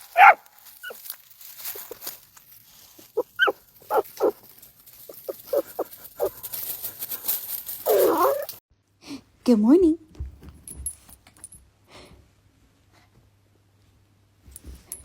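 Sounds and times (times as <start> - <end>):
dog barking in yips: 0.0 - 1.0, 3.2 - 4.4, 7.8 - 8.6
dog whining: 3.2 - 4.4, 5.1 - 6.3, 7.8 - 8.6.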